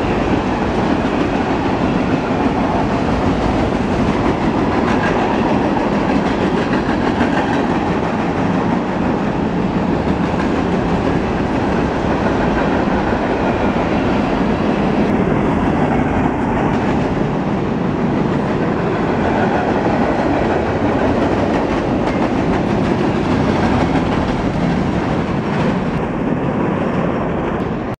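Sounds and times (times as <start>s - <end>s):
freight train cars rolling past: 0.0s - 28.0s
steel wheels clattering on rails: 18.0s - 28.0s.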